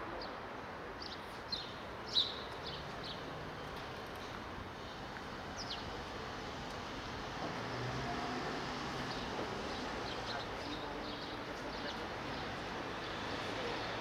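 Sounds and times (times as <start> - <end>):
background noise: 0.0 - 14.0
small birds chirping: 1.0 - 6.5, 9.0 - 14.0.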